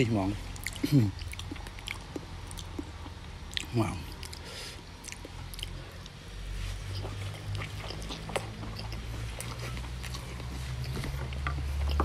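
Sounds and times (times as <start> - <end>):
low steady hum: 0.0 - 12.0
person chewing with smacking: 0.5 - 12.0.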